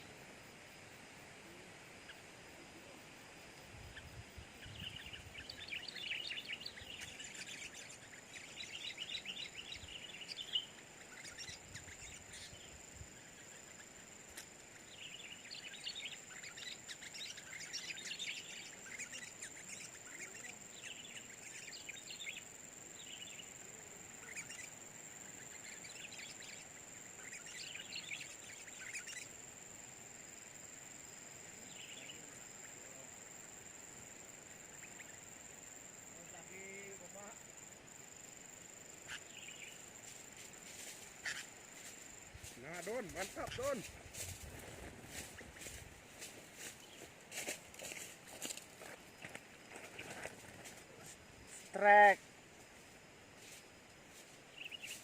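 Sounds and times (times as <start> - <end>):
bulbul chirping and singing: 4.0 - 29.4, 39.0 - 39.9, 54.5 - 55.0.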